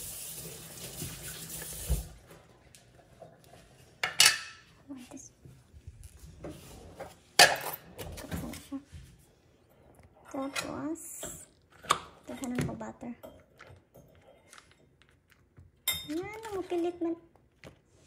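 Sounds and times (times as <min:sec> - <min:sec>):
pans and utensils clattering: 0:04.0 - 0:04.7, 0:06.5 - 0:08.6.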